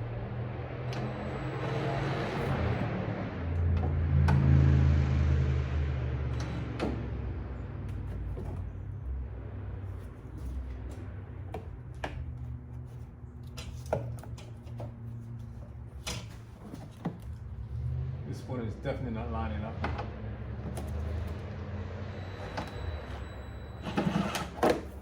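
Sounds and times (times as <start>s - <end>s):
hand tools clicking and knocking: 13.3s - 17.4s.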